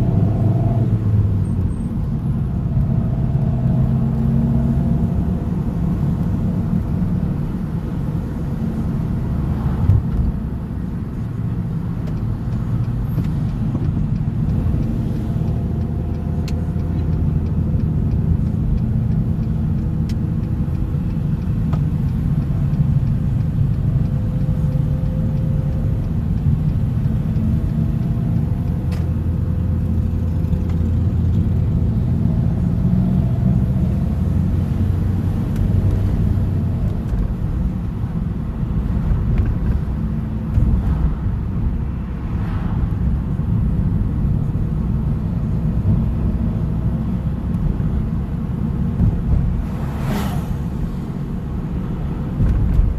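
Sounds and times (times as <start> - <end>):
car engine drone: 0.0 - 52.9
road noise: 0.0 - 52.9.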